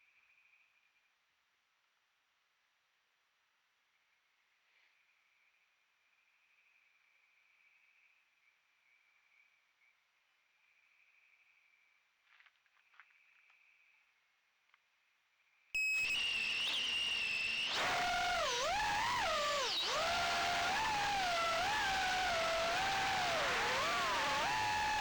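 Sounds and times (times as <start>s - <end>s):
quadcopter motors whining: 15.8s - 25.0s.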